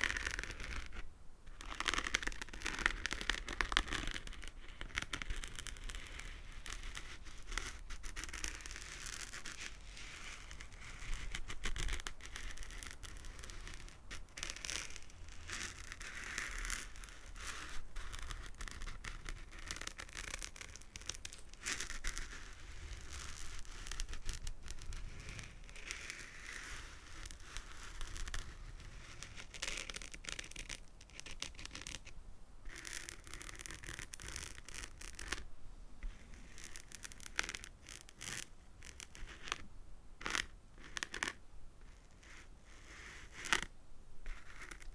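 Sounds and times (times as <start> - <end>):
fingernails scratching and tapping: 44.3 - 44.9.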